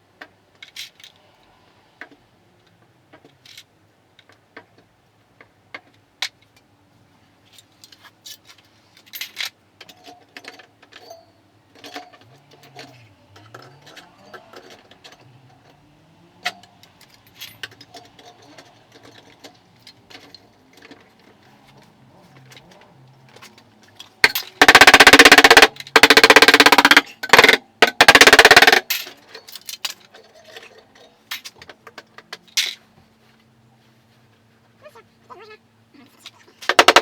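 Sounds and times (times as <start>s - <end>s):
hand tools clicking on metal: 9.2s - 15.8s, 16.4s - 32.8s, 36.2s - 37.0s.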